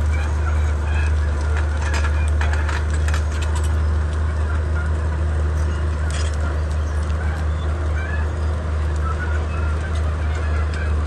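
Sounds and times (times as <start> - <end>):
bulldozer diesel engine droning: 0.0 - 11.0
sharp clicks and cracks: 0.9 - 5.0, 5.8 - 7.5.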